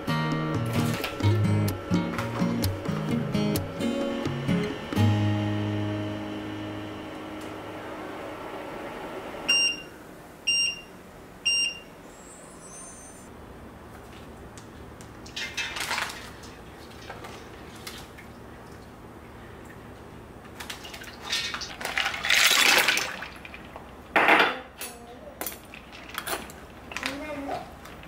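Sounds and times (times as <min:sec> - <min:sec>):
dishes and cookware clattering: 0:15.3 - 0:16.2, 0:24.2 - 0:26.6.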